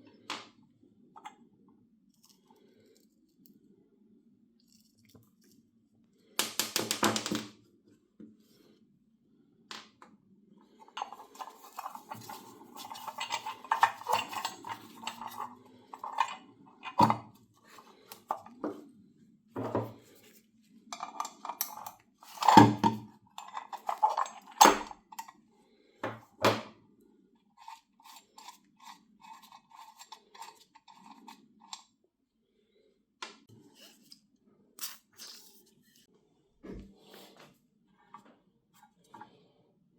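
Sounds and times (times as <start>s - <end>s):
metal parts clinking and knocking: 10.9s - 17.1s
metal parts rattling: 11.0s - 17.0s.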